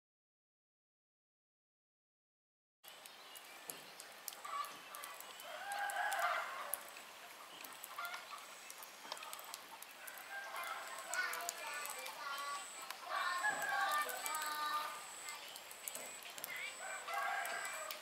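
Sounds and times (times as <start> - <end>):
faint clicks: 2.9 - 16.7, 17.4 - 18.0.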